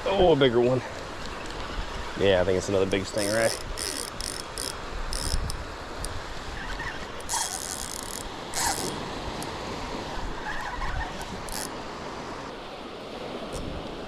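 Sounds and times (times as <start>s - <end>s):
surf washing: 0.0s - 14.0s
fishing reel ratcheting: 3.2s - 6.2s, 7.2s - 9.0s, 11.4s - 11.7s.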